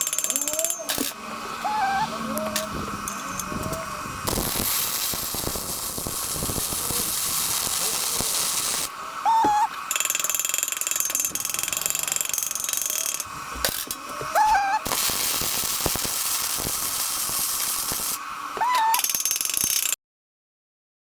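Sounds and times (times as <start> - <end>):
welding arc crackling: 0.0 - 18.5
welder rising whine: 0.0 - 18.6.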